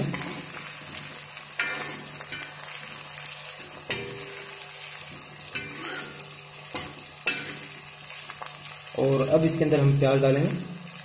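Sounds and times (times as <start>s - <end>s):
food sizzling in hot oil: 0.0s - 11.0s
ladle scraping and knocking pan: 5.5s - 6.2s.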